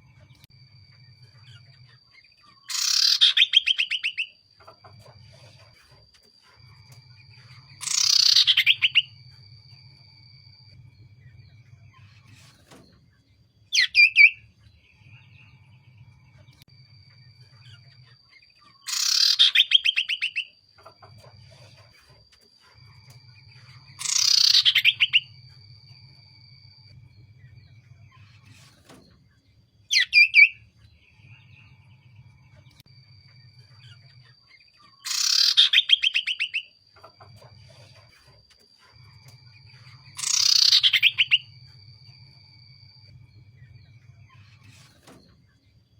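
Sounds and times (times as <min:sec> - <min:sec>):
faint low hum: 0:00.0 - 0:45.9
bird trilled calls: 0:02.5 - 0:04.8, 0:07.8 - 0:09.1, 0:18.7 - 0:21.0, 0:23.9 - 0:25.3, 0:29.9 - 0:30.6, 0:34.8 - 0:37.2, 0:40.0 - 0:41.5.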